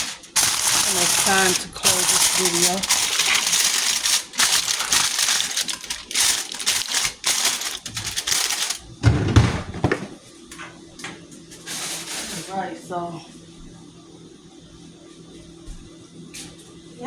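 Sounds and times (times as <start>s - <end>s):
close rustling and crinkling: 0.0s - 8.8s.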